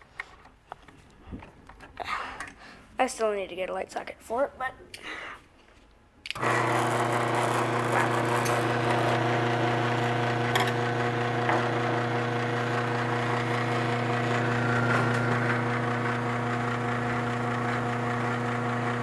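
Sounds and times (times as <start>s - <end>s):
electrical hum and buzz: 6.4s - 19.0s.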